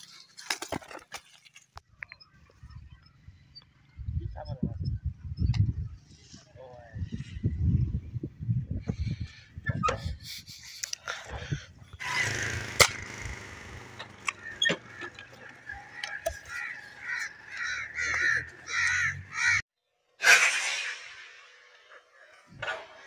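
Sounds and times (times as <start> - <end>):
outdoor noise: 0.0 - 23.0
harsh bird calls: 11.4 - 19.6.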